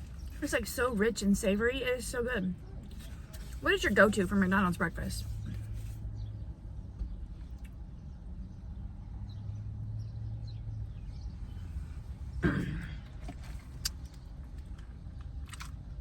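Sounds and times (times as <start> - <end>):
person chewing food: 13.3 - 16.0.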